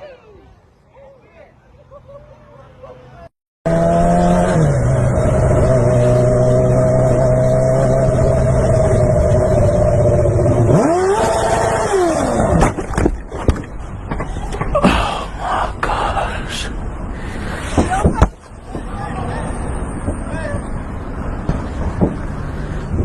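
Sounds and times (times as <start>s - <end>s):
car engine revving high: 3.7s - 12.6s
sharp knocks: 21.4s - 22.2s.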